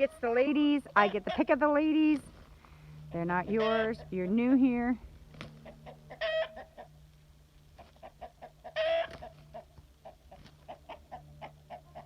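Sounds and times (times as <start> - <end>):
chickens clucking: 0.0 - 2.6, 3.2 - 4.4, 5.2 - 12.0
chicken squawking call: 3.5 - 4.1, 5.6 - 7.0, 7.8 - 12.0.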